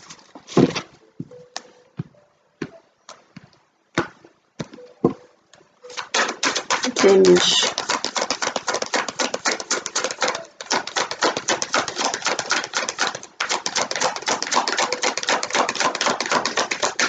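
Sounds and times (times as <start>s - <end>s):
cards being shuffled: 5.8s - 17.0s.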